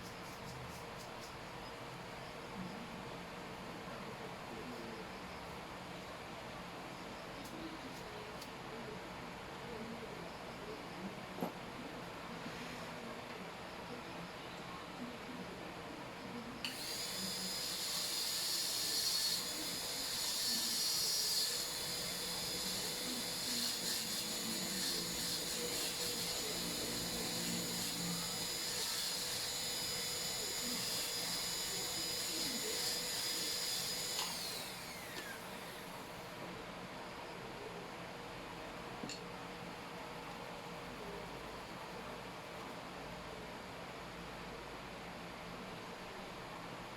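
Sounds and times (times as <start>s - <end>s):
dental drill whining: 16.7s - 36.3s.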